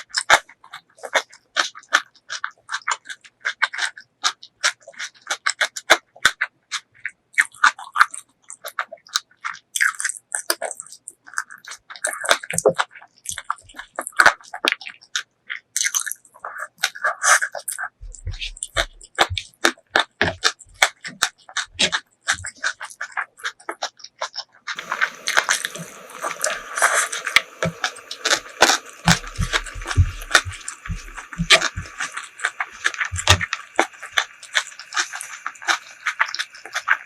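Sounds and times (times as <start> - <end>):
wet chewing and mouth noises: 0.0 - 37.0
steady hiss: 24.8 - 37.0.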